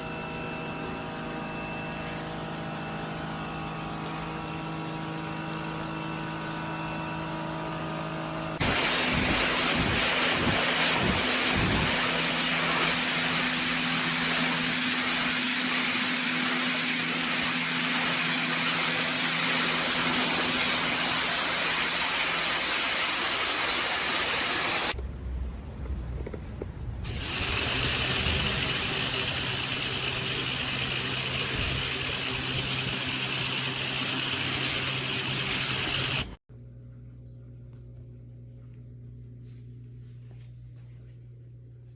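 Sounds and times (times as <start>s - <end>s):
pressure washer motor humming: 8.6s - 25.0s, 27.0s - 36.4s
water jet spraying a deck: 8.6s - 25.0s, 27.0s - 36.4s.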